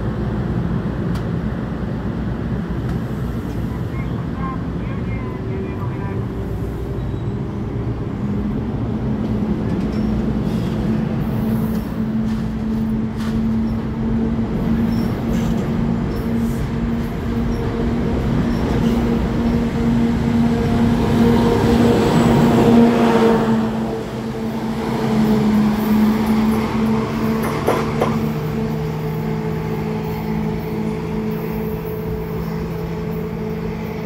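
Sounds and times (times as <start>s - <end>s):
train wheels on rails: 6.8s - 34.0s
rail clicks: 9.1s - 19.9s, 24.5s - 28.9s.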